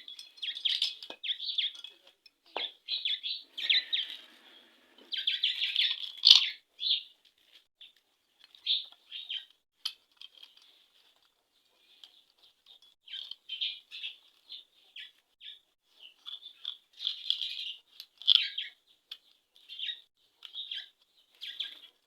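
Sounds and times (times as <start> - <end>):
small birds chirping: 0.0 - 7.2, 7.8 - 9.6, 10.3 - 22.0.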